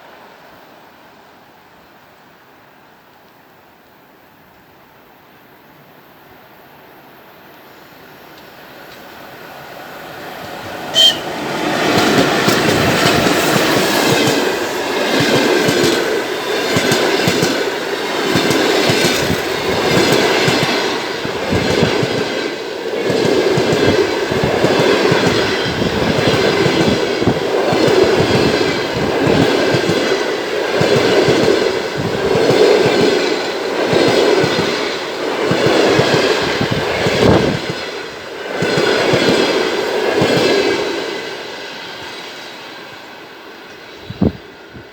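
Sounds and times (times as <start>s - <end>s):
train rumbling past: 7.4s - 44.9s
wheels over rail joints: 8.3s - 40.8s
short sharp high sound: 10.9s - 11.4s.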